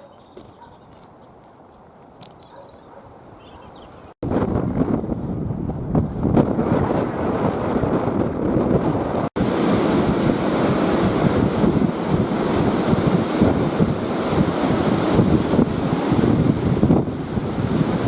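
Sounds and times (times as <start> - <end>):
wind buffeting microphone: 3.1 - 18.0.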